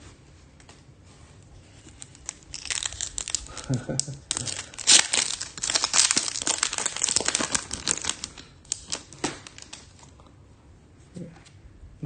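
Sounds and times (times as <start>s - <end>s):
wrapper tearing and crinkling: 1.8s - 10.2s.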